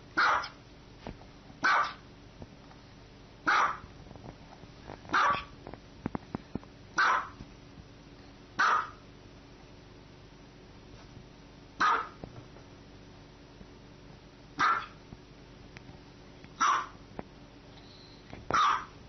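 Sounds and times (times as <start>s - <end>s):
small dog barking: 0.2s - 0.6s, 1.6s - 2.0s, 3.4s - 3.9s, 5.1s - 5.5s, 7.0s - 7.4s, 8.6s - 9.0s, 11.8s - 12.2s, 14.6s - 15.0s, 16.6s - 17.0s, 18.5s - 19.0s.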